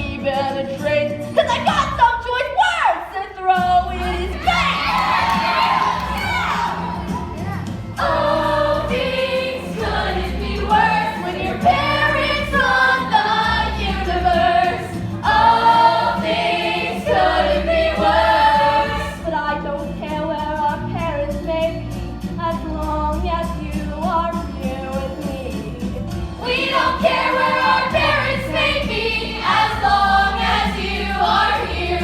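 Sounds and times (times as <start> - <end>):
instrumental backing with bass: 3.6 - 32.0
voices singing together: 4.0 - 20.0, 24.6 - 32.0.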